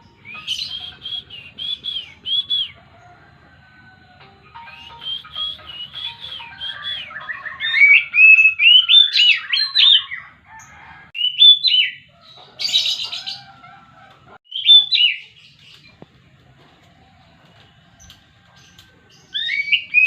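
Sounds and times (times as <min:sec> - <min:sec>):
bird singing whistled notes: 0:00.0 - 0:03.1, 0:04.6 - 0:10.3, 0:11.2 - 0:12.0, 0:14.4 - 0:15.7, 0:19.2 - 0:20.0.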